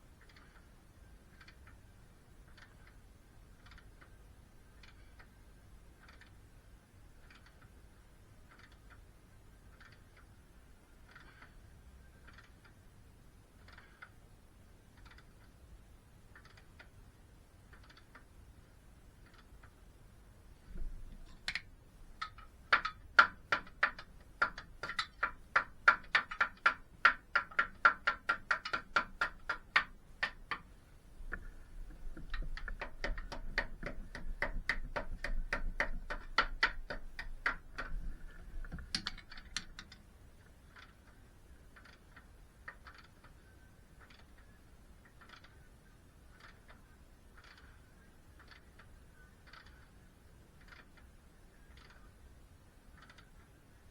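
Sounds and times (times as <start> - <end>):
sharp clicks: 21.1 - 40.1.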